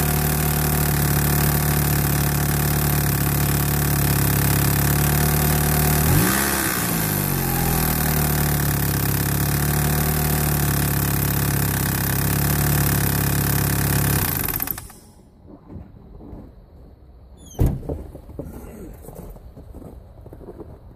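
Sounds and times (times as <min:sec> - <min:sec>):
car engine idling and revving: 0:00.0 - 0:15.2.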